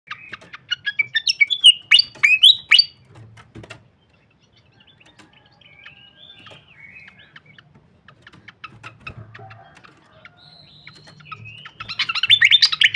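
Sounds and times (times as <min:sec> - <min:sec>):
bird chirping and whistling: 0:00.1 - 0:03.0, 0:10.5 - 0:12.9
bird twittering warble: 0:00.1 - 0:03.0, 0:04.1 - 0:12.9.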